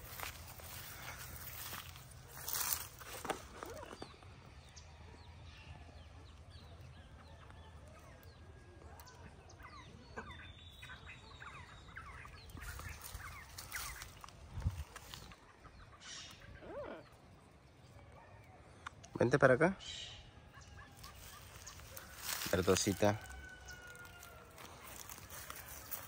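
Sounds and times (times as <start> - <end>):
faint bird chirps: 3.6 - 22.7.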